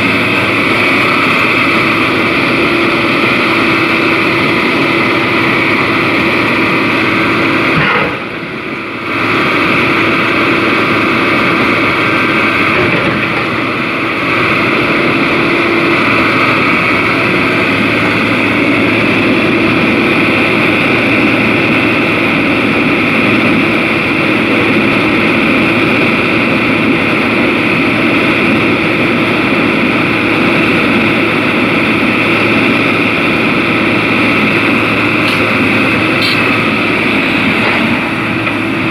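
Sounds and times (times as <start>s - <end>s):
excavator diesel engine droning: 0.0s - 38.9s.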